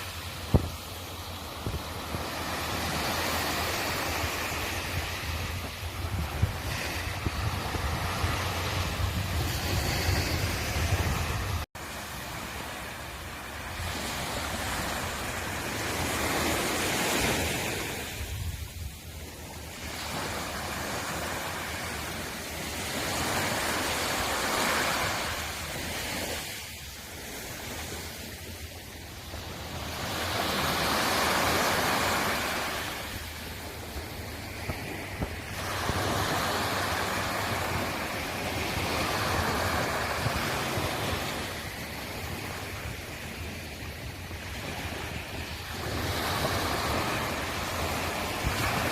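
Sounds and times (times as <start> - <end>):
sea waves breaking on shore: 0.0 - 48.9.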